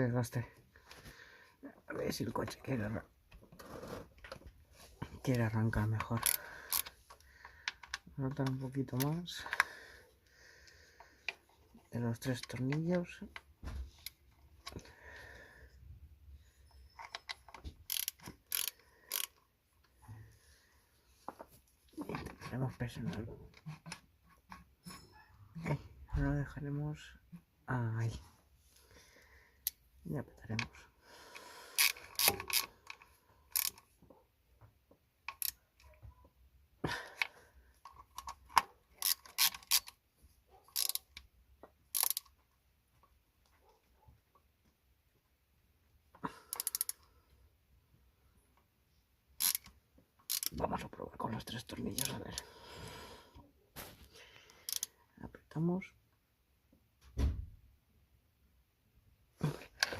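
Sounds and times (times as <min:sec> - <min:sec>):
ratchet wrench clicking: 0:06.2 - 0:06.9, 0:17.9 - 0:19.4, 0:31.8 - 0:33.8, 0:35.3 - 0:35.6, 0:39.0 - 0:40.0, 0:40.7 - 0:41.2, 0:41.9 - 0:42.3, 0:46.5 - 0:47.0, 0:49.4 - 0:49.7, 0:50.3 - 0:50.5, 0:54.7 - 0:54.9.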